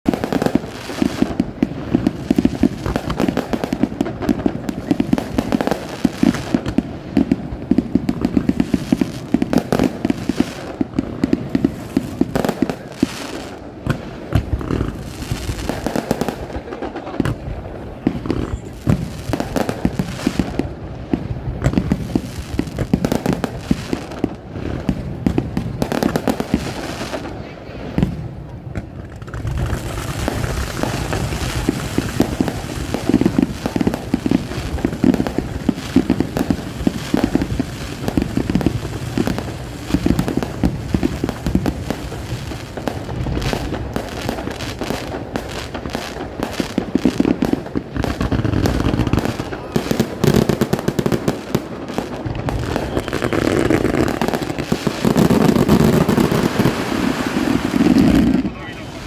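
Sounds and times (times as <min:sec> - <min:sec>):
rapid firework crackling: 0:00.0 - 0:59.0.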